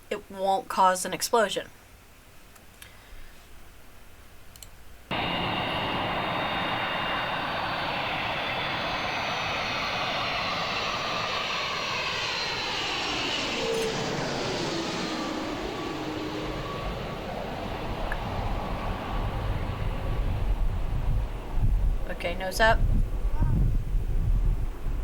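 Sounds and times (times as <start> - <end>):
jet airliner passing overhead: 5.1 - 25.0.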